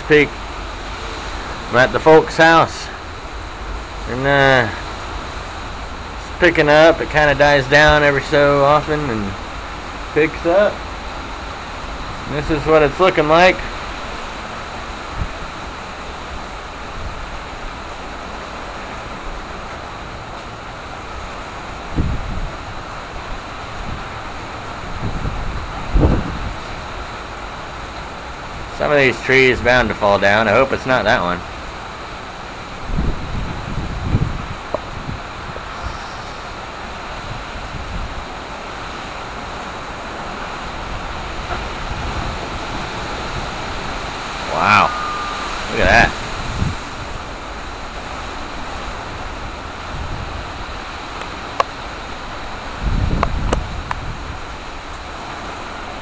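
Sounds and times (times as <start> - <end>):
wind rushing through trees: 0.0 - 56.0
wind buffeting microphone: 19.0 - 28.8, 32.7 - 56.0
strong wind rushing: 21.8 - 22.8, 23.6 - 27.1, 32.8 - 38.3, 40.5 - 50.9, 52.7 - 54.9.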